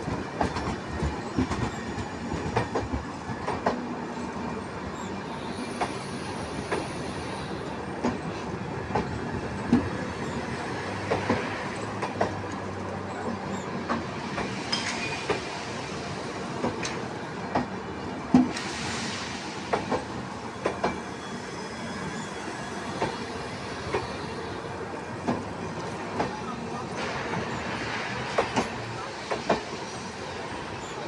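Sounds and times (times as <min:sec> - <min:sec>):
train wheels clicking over rail joints: 0:00.0 - 0:04.0, 0:05.7 - 0:07.0, 0:08.0 - 0:15.6, 0:19.6 - 0:21.0, 0:25.1 - 0:30.1
train rumble: 0:00.0 - 0:31.0.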